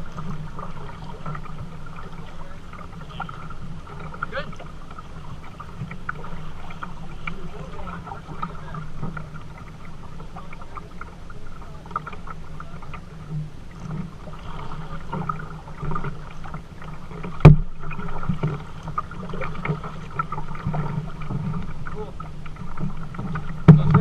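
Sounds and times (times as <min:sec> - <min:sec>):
water splashing against kayak: 0:00.0 - 0:24.0
knocks on kayak hull: 0:17.4 - 0:17.7.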